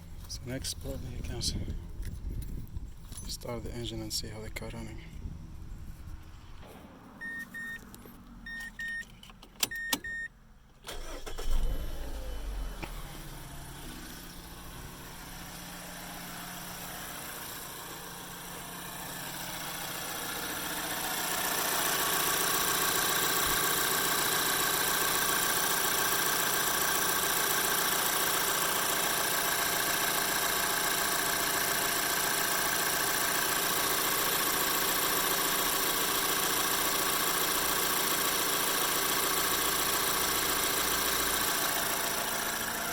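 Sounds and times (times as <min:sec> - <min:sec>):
car engine starting and idling: 0:00.0 - 0:05.4, 0:06.2 - 0:42.9
short electronic beeps: 0:07.2 - 0:07.8.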